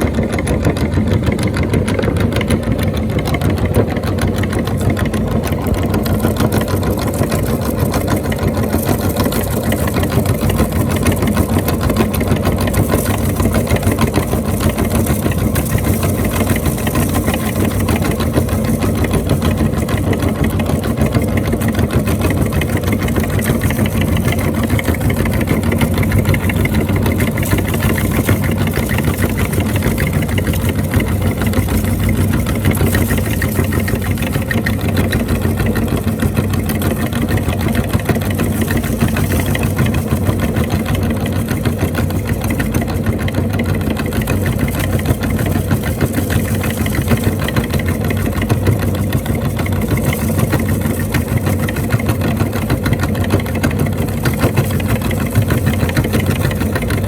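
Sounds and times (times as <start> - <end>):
dense crackle of grinding: 0.0 - 57.0
electric grinder motor hum: 5.2 - 35.7.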